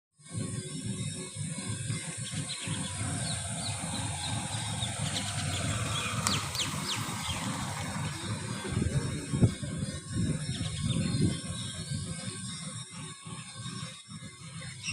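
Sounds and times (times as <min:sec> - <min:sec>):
small birds chirping: 0:00.5 - 0:14.9
low rumble: 0:02.3 - 0:12.2.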